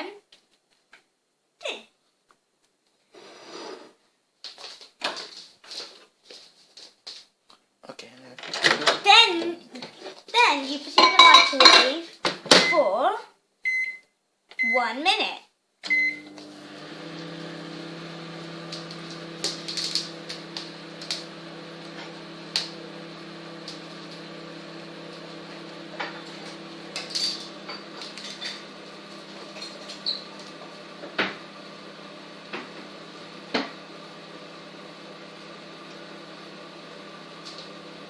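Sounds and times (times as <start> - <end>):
microwave oven humming: 15.9 - 38.0.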